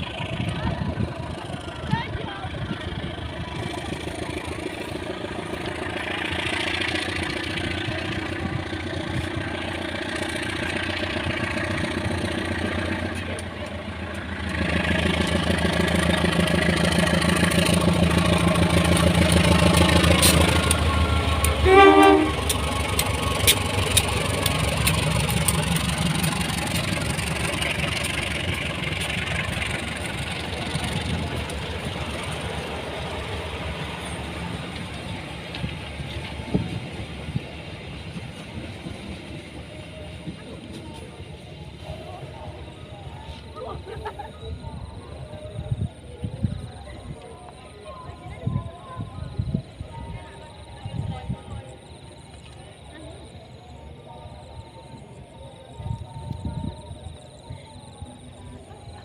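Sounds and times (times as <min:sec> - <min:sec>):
diesel train engine drone: 0:00.0 - 0:59.0
train horn blast: 0:21.5 - 0:22.6.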